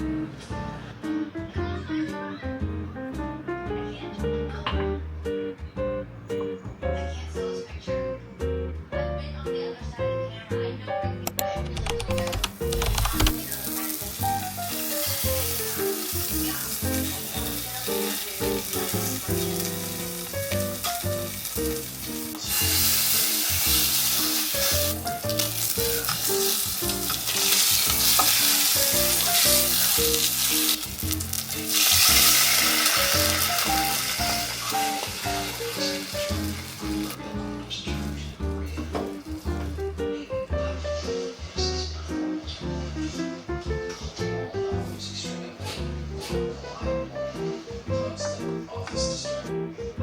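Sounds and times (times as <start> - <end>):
light background music: 0.0 - 50.0
food sizzling in a pan: 13.3 - 37.3.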